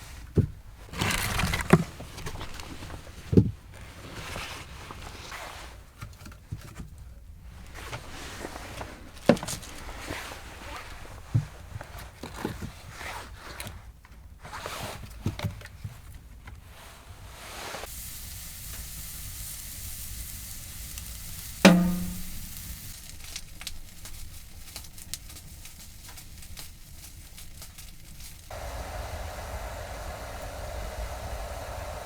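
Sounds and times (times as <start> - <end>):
light crackles: 16.7 - 32.0
sizzle on hot wood stove: 17.3 - 32.0
handling knocks: 21.6 - 22.7
metal clank with ring: 21.7 - 22.5.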